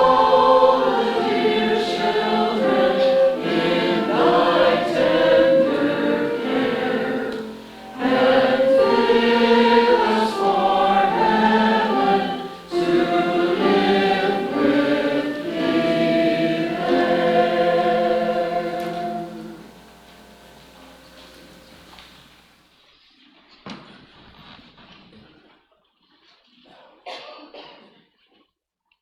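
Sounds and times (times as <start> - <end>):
choir breaths: 0.0 - 22.2
choir singing a carol: 0.0 - 22.3.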